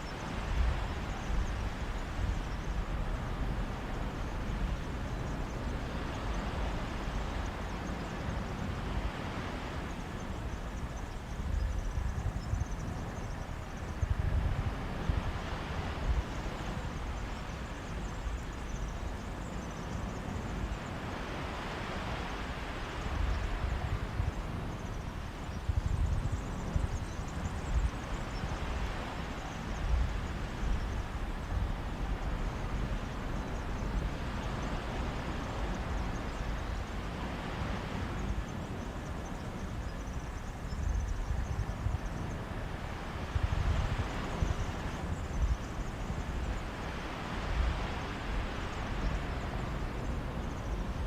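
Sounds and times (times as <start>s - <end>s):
sea breeze: 0.0s - 51.0s
wind rumble on microphone: 0.0s - 51.0s
waves washing onto beach: 12.8s - 51.0s
waves washing on beach: 41.6s - 51.0s.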